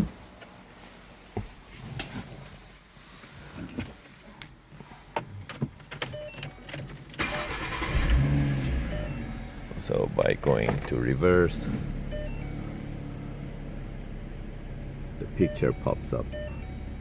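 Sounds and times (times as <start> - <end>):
car engine starting and running: 7.2 - 17.0.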